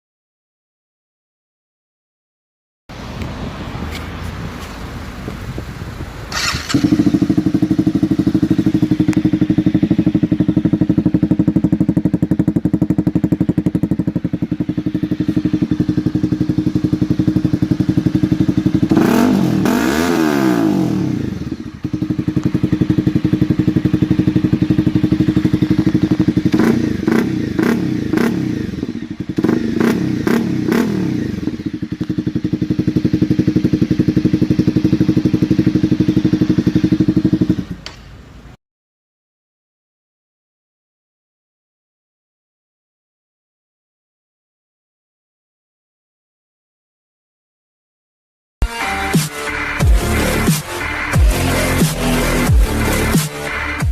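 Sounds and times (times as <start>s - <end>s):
motorcycle engine idling and revving: 2.9s - 38.6s, 48.6s - 53.9s.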